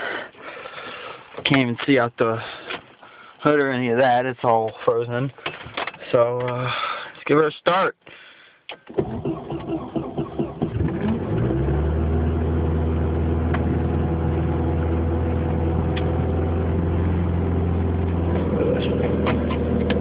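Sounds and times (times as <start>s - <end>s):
starter motor cranking: 8.9s - 12.0s
car engine idling: 9.2s - 20.0s.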